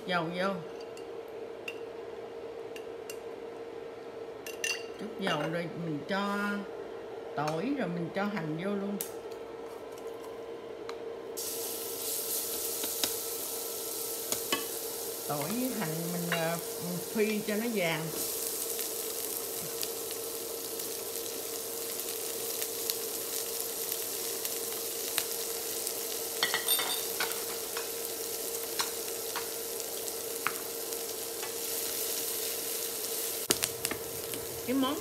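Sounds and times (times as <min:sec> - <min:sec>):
steady hum: 0:00.0 - 0:35.0
onion sizzling in hot oil: 0:11.4 - 0:35.0.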